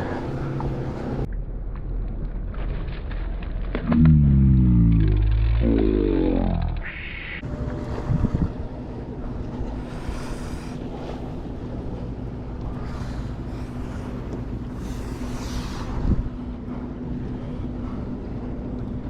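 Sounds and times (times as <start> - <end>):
water noise: 0.0 - 19.0
steady low hum: 3.2 - 19.0
wind buffeting the microphone: 7.8 - 9.9, 12.8 - 19.0.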